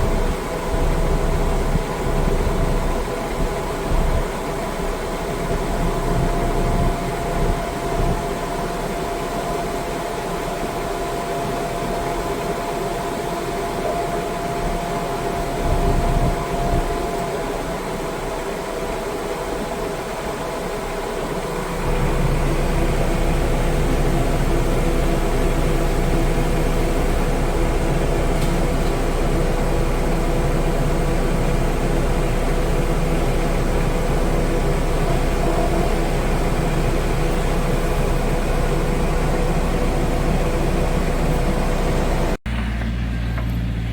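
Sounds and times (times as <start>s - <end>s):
engine humming: 0.0s - 43.9s.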